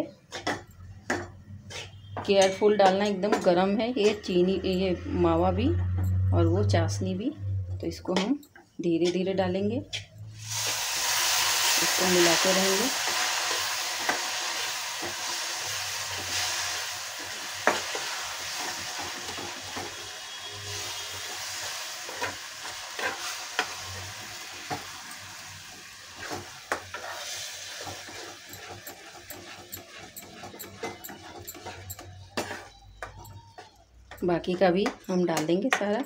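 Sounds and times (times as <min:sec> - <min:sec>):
metal spatula stirring and scraping: 0:00.2 - 0:05.0, 0:13.0 - 0:25.1, 0:25.8 - 0:35.0
sugar syrup sizzling: 0:10.4 - 0:32.6.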